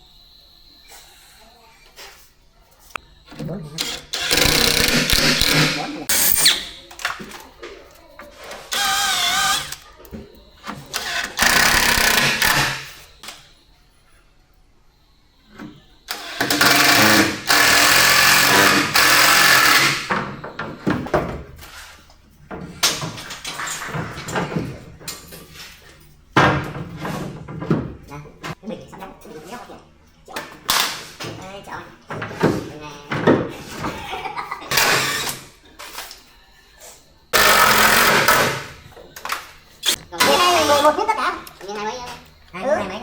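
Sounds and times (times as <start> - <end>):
power tool cutting wood: 3.8 - 6.6, 8.7 - 9.8, 11.0 - 12.9, 16.1 - 20.1, 34.7 - 35.4, 37.4 - 38.6.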